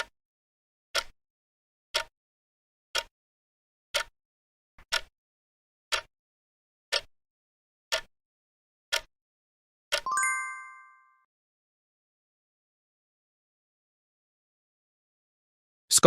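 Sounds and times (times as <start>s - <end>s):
timer ticking: 0.9s - 1.2s, 1.9s - 2.1s, 2.9s - 3.1s, 3.9s - 4.1s, 4.8s - 5.1s, 5.9s - 6.1s, 6.9s - 7.1s, 7.9s - 8.1s, 8.9s - 9.1s, 9.9s - 11.3s
bell-like chime: 10.1s - 11.3s.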